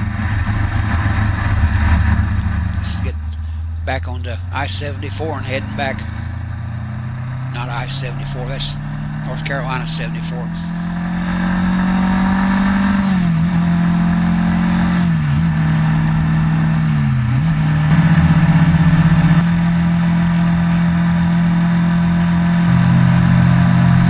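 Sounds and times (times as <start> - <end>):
vehicle engine running at speed: 0.0 - 24.0.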